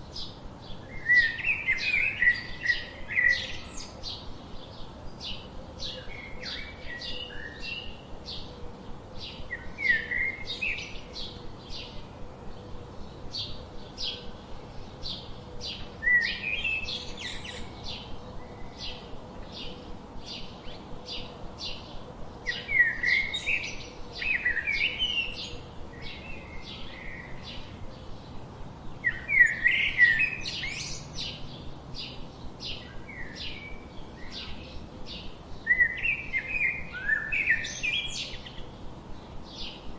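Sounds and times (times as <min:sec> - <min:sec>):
bird twittering: 0:29.0 - 0:31.0.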